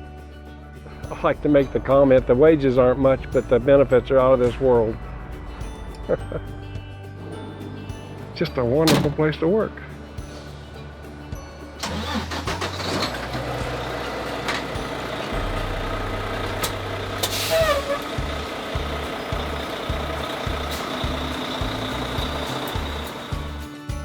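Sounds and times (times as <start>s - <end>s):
truck engine humming: 11.8s - 24.0s
air brake hiss: 17.2s - 18.1s.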